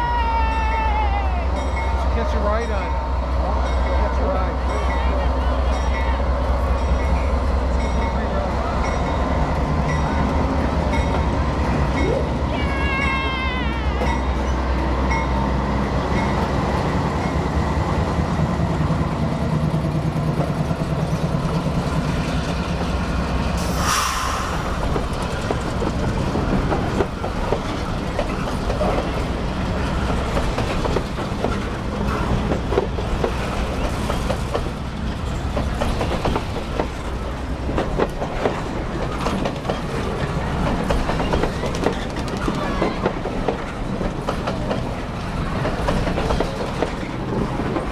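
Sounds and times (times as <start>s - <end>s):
diesel locomotive engine humming: 0.0s - 47.9s
rail cars rumbling: 0.0s - 47.9s
brief hiss: 23.6s - 25.5s
wheels clicking over rail joints: 25.0s - 47.9s.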